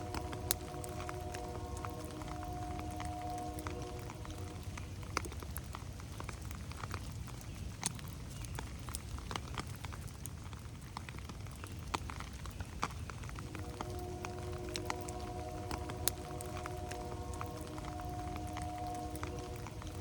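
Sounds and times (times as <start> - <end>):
raindrops tapping on leaves: 0.0 - 20.0
low rumble: 13.4 - 20.0.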